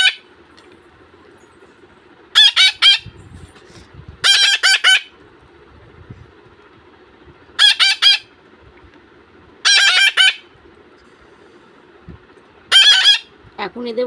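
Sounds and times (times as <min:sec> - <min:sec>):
parakeet chicks calling harshly: 0:00.0 - 0:00.2, 0:02.3 - 0:03.2, 0:04.2 - 0:05.2, 0:07.6 - 0:08.4, 0:09.6 - 0:10.6, 0:12.7 - 0:13.4.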